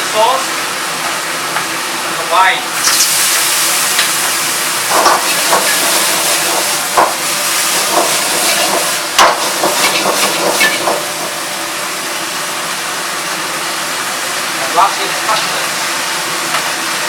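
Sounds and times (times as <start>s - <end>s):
food sizzling in a wok: 0.5s - 17.0s
utensil scraping a wok: 4.9s - 11.1s.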